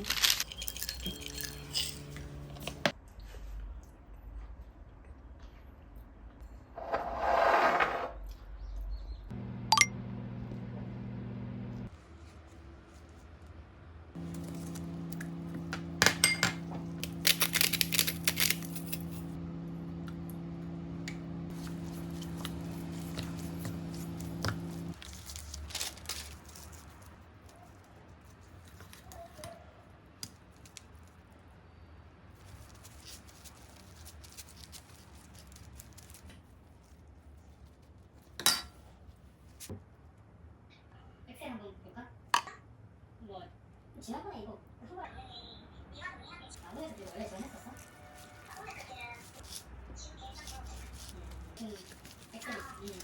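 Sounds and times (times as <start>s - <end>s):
dishes and utensils clinking: 0.0s - 2.9s, 15.9s - 16.7s
handling noises: 0.0s - 2.9s, 14.2s - 27.6s
wrapping rustling: 0.0s - 2.9s, 16.9s - 19.4s, 21.5s - 29.4s, 32.3s - 38.4s, 46.6s - 53.0s
kitchen appliance humming: 0.5s - 2.9s, 9.3s - 11.9s, 14.2s - 25.0s.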